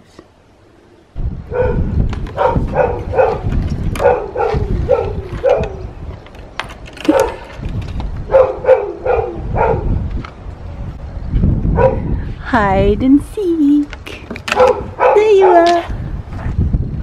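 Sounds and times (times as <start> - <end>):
dog barking: 1.5 - 5.7, 7.1 - 7.4, 8.3 - 9.9, 11.8 - 12.0, 14.6 - 15.7.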